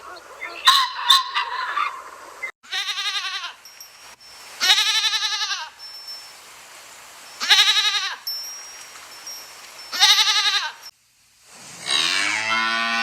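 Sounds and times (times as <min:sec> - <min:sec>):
goat bleating: 0:02.6 - 0:03.6, 0:04.6 - 0:05.8, 0:07.4 - 0:08.2, 0:09.9 - 0:10.9.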